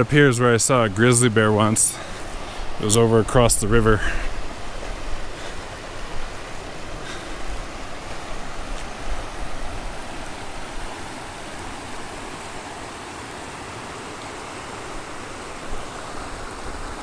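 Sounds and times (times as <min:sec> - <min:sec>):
fast-flowing river rushing: 0:00.0 - 0:17.0.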